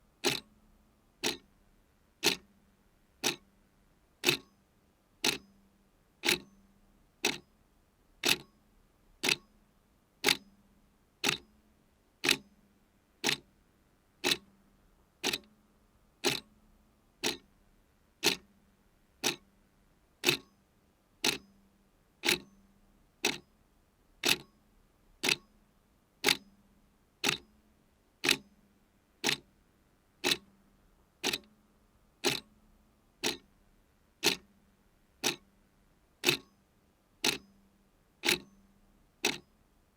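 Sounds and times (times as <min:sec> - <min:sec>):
mechanical clock ticking: 0:00.2 - 0:00.5, 0:01.2 - 0:01.5, 0:02.2 - 0:02.5, 0:03.2 - 0:03.4, 0:04.2 - 0:04.5, 0:05.2 - 0:05.5, 0:06.2 - 0:06.5, 0:07.2 - 0:07.4, 0:08.2 - 0:08.5, 0:09.2 - 0:09.4, 0:10.2 - 0:10.4, 0:11.2 - 0:11.4, 0:12.2 - 0:12.4, 0:13.2 - 0:13.4, 0:14.2 - 0:14.5, 0:15.2 - 0:15.5, 0:16.2 - 0:16.5, 0:17.2 - 0:17.5, 0:18.2 - 0:18.5, 0:19.2 - 0:19.4, 0:20.2 - 0:20.5, 0:21.2 - 0:21.5, 0:22.2 - 0:22.5, 0:23.2 - 0:23.4, 0:24.2 - 0:24.5, 0:25.2 - 0:25.5, 0:26.2 - 0:26.4, 0:27.2 - 0:27.4, 0:28.2 - 0:28.4, 0:29.2 - 0:29.5, 0:30.2 - 0:30.5, 0:31.2 - 0:31.5, 0:32.2 - 0:32.5, 0:33.2 - 0:33.5, 0:34.2 - 0:34.5, 0:35.2 - 0:35.5, 0:36.2 - 0:36.5, 0:37.2 - 0:37.6, 0:38.2 - 0:38.6, 0:39.2 - 0:39.5.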